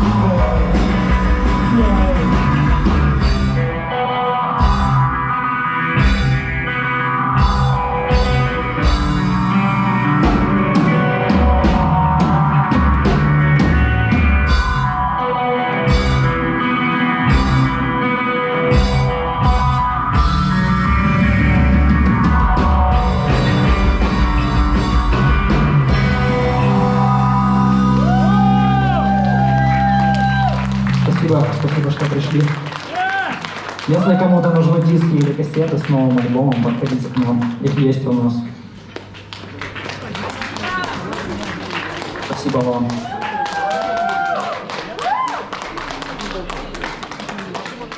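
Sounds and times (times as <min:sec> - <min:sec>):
live rock band playing: 0:00.0 - 0:37.3.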